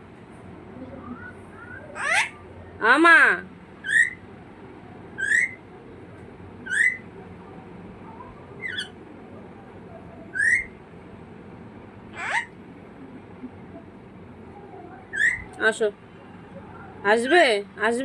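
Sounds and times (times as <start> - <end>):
pet bird whistled calls: 1.0 - 2.4, 3.8 - 4.2, 5.2 - 5.6, 6.7 - 7.0, 10.3 - 10.7, 15.1 - 15.5.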